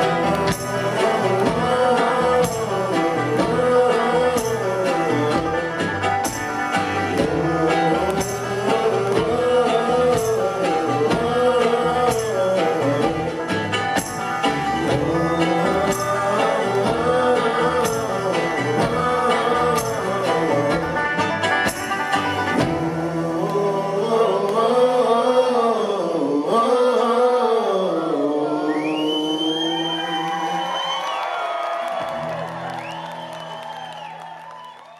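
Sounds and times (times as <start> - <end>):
bluegrass string band playing: 0.0 - 24.6.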